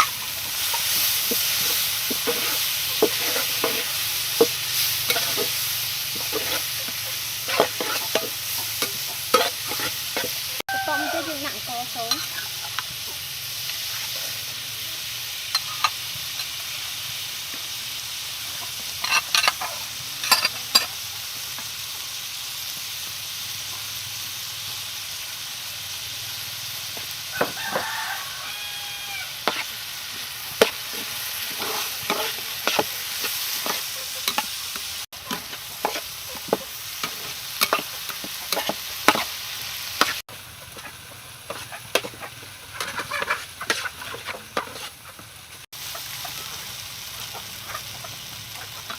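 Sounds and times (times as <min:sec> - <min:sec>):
spatula scraping a pan: 0:00.0 - 0:12.8, 0:18.6 - 0:21.0, 0:27.4 - 0:48.9
rice sizzling in a pan: 0:00.0 - 0:48.9.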